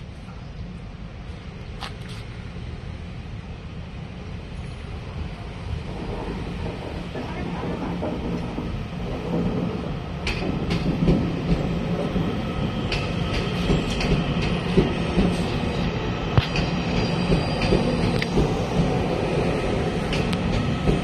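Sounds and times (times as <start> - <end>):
train rail rumble: 0.0 - 21.0.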